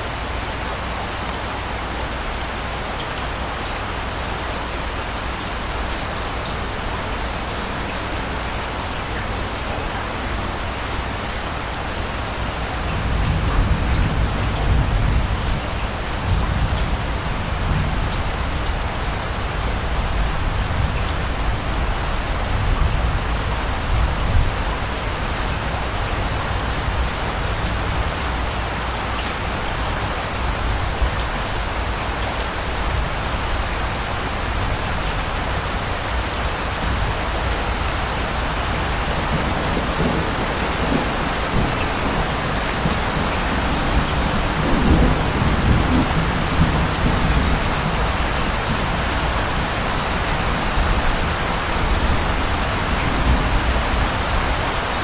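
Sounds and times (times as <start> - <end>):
steady rain: 0.0 - 55.0
distant thunder rumbles: 38.8 - 49.1.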